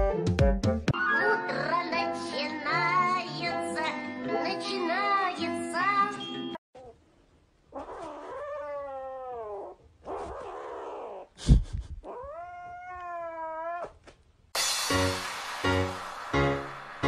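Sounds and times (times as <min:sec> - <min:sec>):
kitten yowling: 0:07.8 - 0:11.3, 0:12.0 - 0:14.0.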